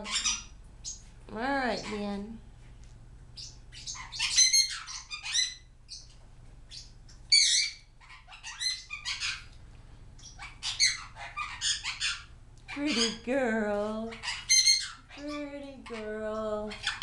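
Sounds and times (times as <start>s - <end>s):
parrots squawking and chirping: 0.0s - 1.1s, 1.7s - 2.2s, 3.4s - 9.6s, 10.2s - 13.3s, 14.0s - 17.0s.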